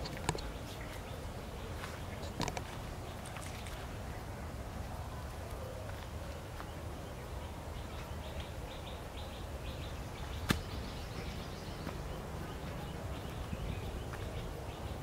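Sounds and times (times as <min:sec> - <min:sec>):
footsteps on leafy trail: 0:00.0 - 0:07.0, 0:10.2 - 0:14.6
bird chirping: 0:00.0 - 0:15.0.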